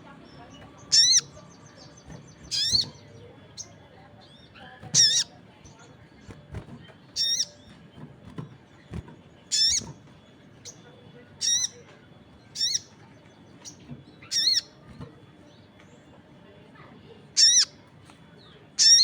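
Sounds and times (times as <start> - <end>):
faint chirps of other birds: 0.0 - 19.0
bird high warbled calls: 0.8 - 3.7, 4.3 - 5.4, 7.1 - 7.8, 9.5 - 10.0, 11.4 - 11.9, 12.5 - 13.0, 13.6 - 14.9, 17.3 - 17.8, 18.8 - 19.0.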